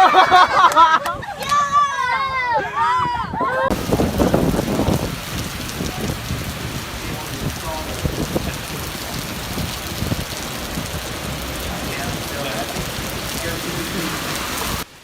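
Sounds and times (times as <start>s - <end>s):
heavy rain beating: 3.7s - 15.0s.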